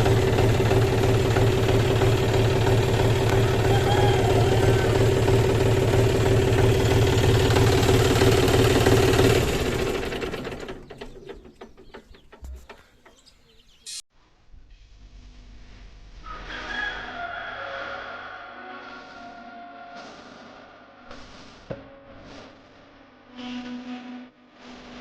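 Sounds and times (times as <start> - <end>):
tractor diesel engine running: 0.0 - 13.6.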